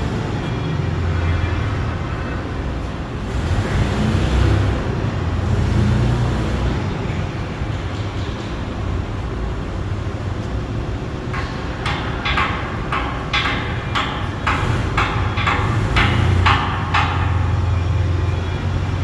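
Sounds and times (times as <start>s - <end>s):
hammer striking steel: 11.3s - 18.4s.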